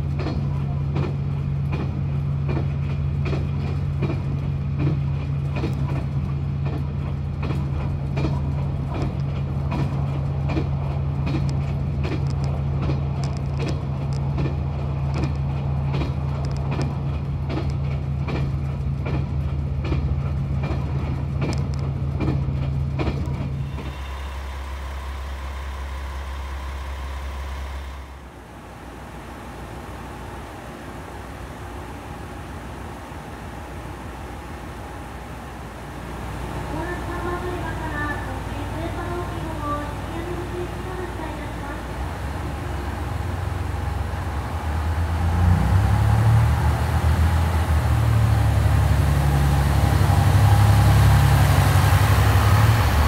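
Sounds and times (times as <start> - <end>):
wheels clicking over rail joints: 0.0 - 23.9
train running drone inside carriage: 0.0 - 53.0.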